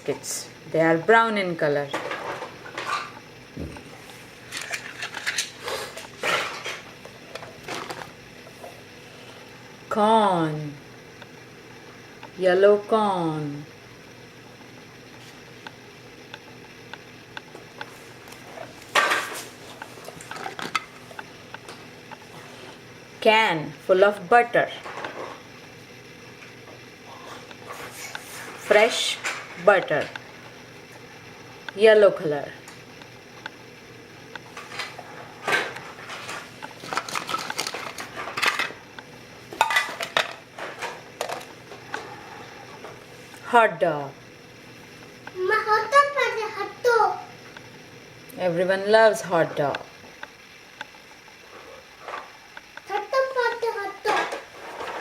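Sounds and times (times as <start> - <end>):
hard items rattling clatter: 34.6 - 38.7.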